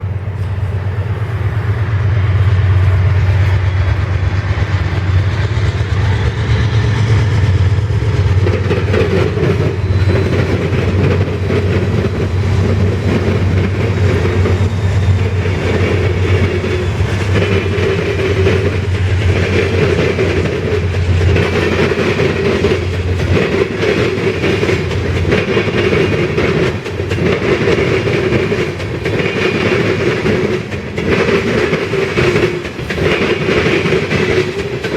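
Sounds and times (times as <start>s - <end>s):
tank cars rumbling: 0.0s - 27.8s
diesel locomotives running: 0.0s - 34.9s
wheels clicking over rail joints: 2.7s - 34.9s.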